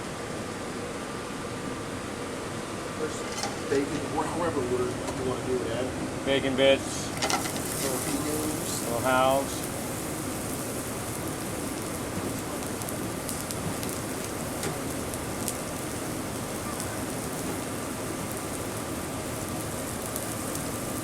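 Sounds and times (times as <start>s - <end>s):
food sizzling in a hot pan: 7.1s - 21.0s.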